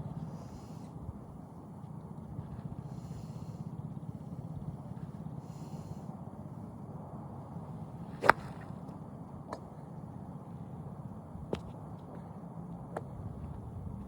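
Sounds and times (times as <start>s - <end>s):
golf club striking ball: 8.2s - 8.8s.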